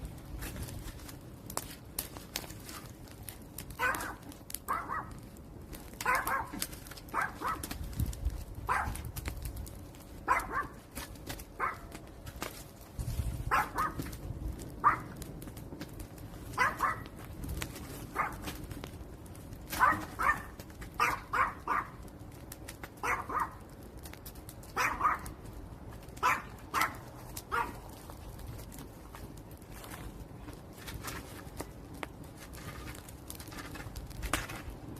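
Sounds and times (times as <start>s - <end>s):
wood fire crackling: 0.0s - 34.9s
dog barking: 3.8s - 5.2s, 6.0s - 7.7s, 8.7s - 9.0s, 10.2s - 10.8s, 11.6s - 11.9s, 13.5s - 14.0s, 14.8s - 15.1s, 16.6s - 17.1s, 18.1s - 18.4s, 19.8s - 22.0s, 23.0s - 23.6s, 24.8s - 25.3s, 26.2s - 27.8s.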